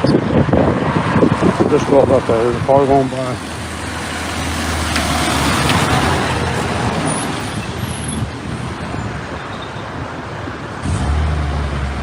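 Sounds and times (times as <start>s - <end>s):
car passing by: 3.2s - 9.3s.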